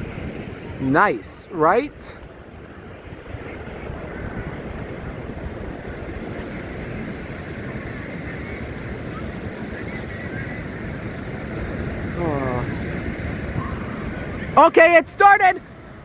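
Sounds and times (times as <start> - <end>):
wind buffeting microphone: 0.0 - 14.7
ocean surf: 0.0 - 16.0.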